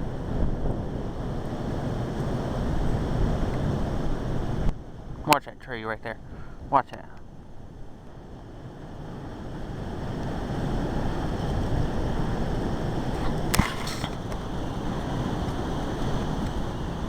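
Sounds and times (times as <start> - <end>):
wind gusting against microphone: 0.0 - 5.4, 6.0 - 17.0.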